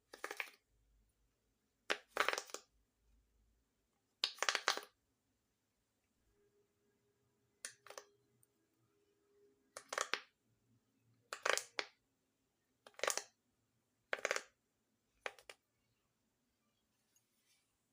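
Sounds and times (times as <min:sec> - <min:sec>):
fidget toy popping: 0:14.1 - 0:14.5.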